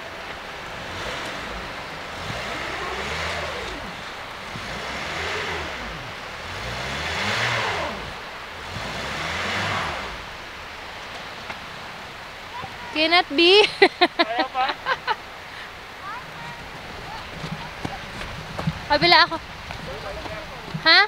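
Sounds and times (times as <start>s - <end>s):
wheels spinning on snow: 0.0s - 13.0s, 15.5s - 21.0s
car engine revving: 0.0s - 13.5s, 14.2s - 21.0s.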